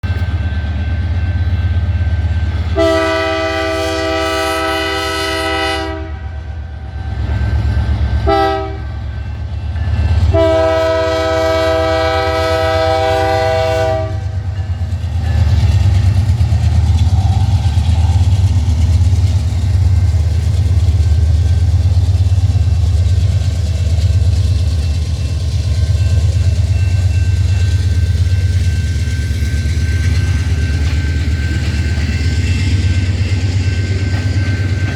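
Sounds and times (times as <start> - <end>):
train rumbling: 0.0 - 34.9
wheels clacking on rails: 0.0 - 34.9
locomotive horn blasts: 2.7 - 6.4, 8.2 - 9.0, 10.3 - 14.4.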